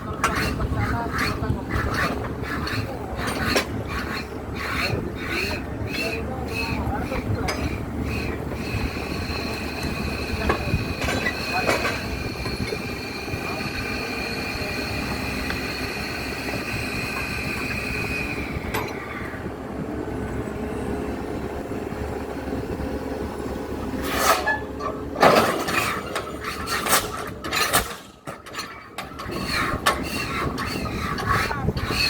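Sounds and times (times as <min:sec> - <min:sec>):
heavy machinery rumbling: 0:00.0 - 0:32.0.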